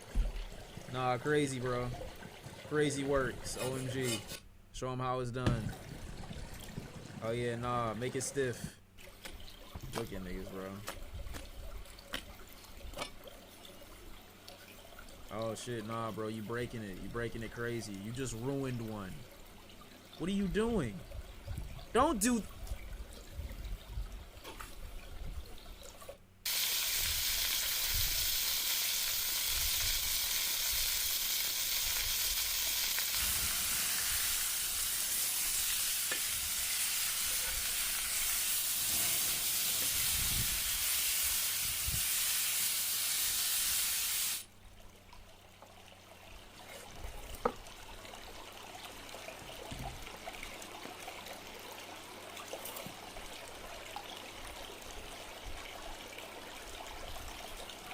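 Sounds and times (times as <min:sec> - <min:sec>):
food sizzling in a hot pan: 0:26.5 - 0:44.4.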